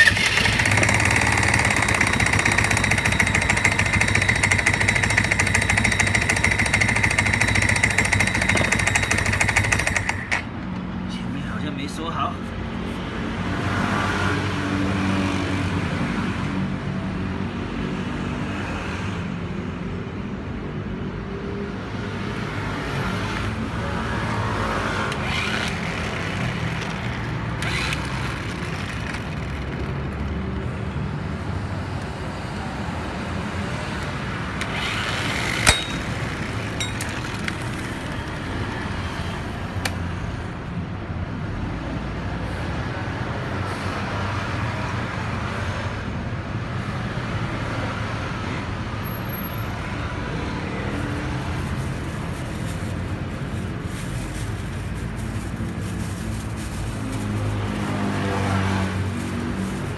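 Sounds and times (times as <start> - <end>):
vehicle engine humming: 0.0 - 11.7, 23.4 - 41.8, 49.8 - 59.9
street noise: 0.0 - 59.9
sharp metallic click: 34.6 - 37.7.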